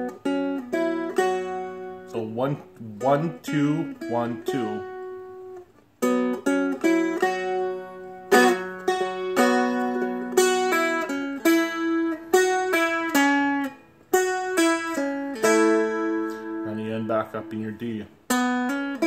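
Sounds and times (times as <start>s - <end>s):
plucked dulcimer notes: 6.0s - 19.0s.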